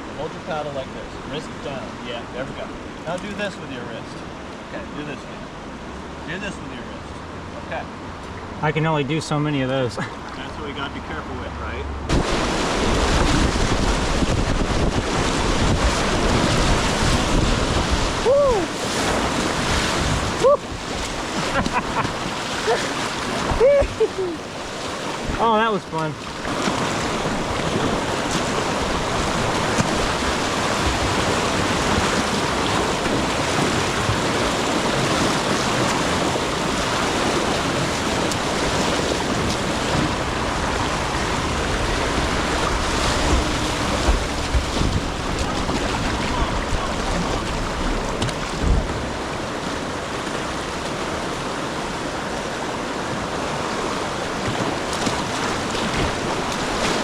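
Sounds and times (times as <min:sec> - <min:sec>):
whitewater rapids rushing: 0:12.1 - 0:57.0
low thumps: 0:39.4 - 0:49.3.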